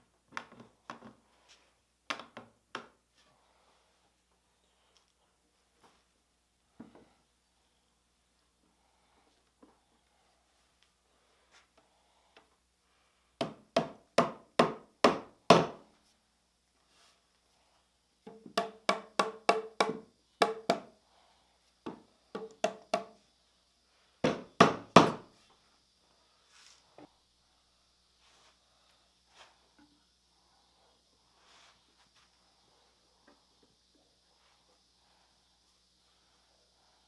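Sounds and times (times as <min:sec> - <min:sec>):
hammer striking wood: 0:13.4 - 0:15.8, 0:18.3 - 0:20.9, 0:22.4 - 0:23.1, 0:24.2 - 0:25.2.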